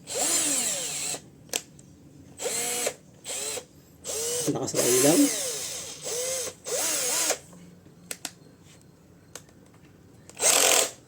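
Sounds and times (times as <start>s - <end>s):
hammer drill motor spinning: 0.1s - 1.2s, 2.4s - 7.4s, 10.3s - 11.0s.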